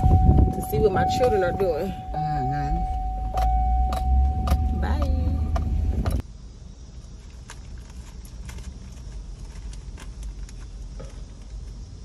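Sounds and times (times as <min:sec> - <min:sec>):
car engine idling: 0:00.0 - 0:06.9.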